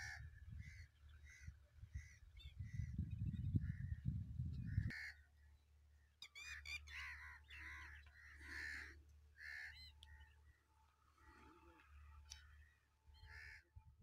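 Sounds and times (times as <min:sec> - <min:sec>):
faint harsh bird caws: 0:00.0 - 0:03.0, 0:04.6 - 0:05.4, 0:06.2 - 0:11.9, 0:13.2 - 0:13.7.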